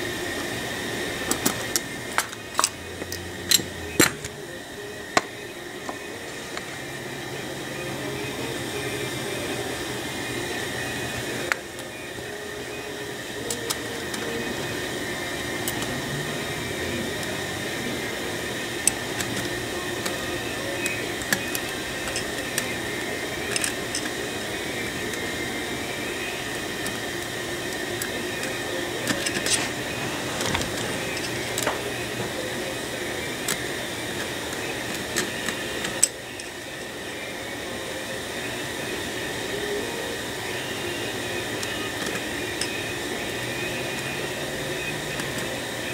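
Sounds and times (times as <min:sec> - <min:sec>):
fan humming: 0:00.0 - 0:45.9
small metal parts clicking: 0:23.5 - 0:24.1.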